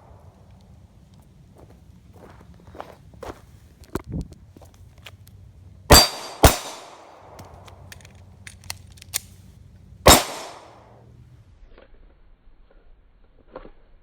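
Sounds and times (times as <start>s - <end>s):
pistol shots with echo: 5.9s - 7.4s, 10.1s - 10.9s.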